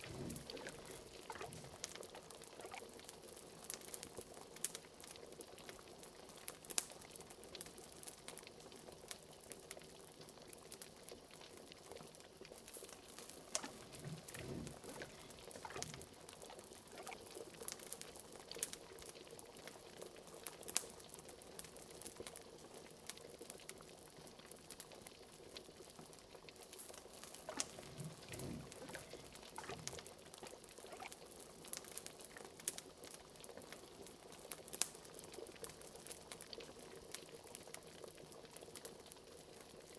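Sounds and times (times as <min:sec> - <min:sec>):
large bubbles glooping: 0:00.0 - 0:02.9, 0:13.4 - 0:17.3, 0:27.4 - 0:30.2, 0:30.9 - 0:31.1
crackles and pops: 0:00.0 - 0:39.9
liquid boiling and bubbling: 0:00.0 - 0:39.9.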